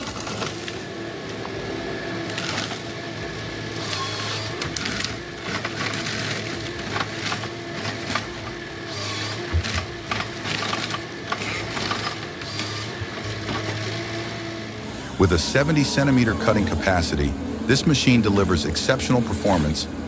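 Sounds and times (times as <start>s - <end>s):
diesel engine and hydraulics humming: 0.0s - 20.0s.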